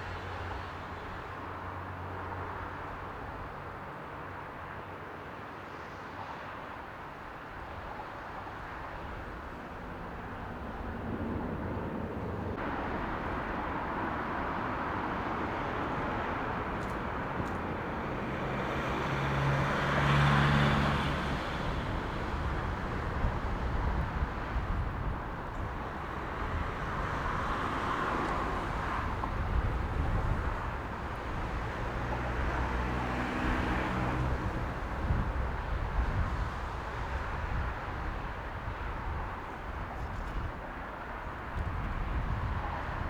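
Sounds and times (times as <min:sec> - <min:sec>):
wind rumbling on microphone: 0:07.6 - 0:43.0.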